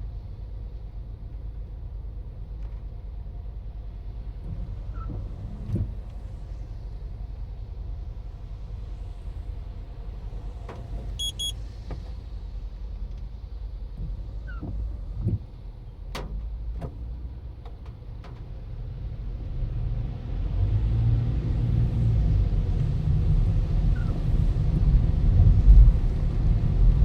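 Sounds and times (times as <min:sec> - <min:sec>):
car engine rumble: 0:00.0 - 0:27.0
double electronic beep: 0:11.2 - 0:11.6.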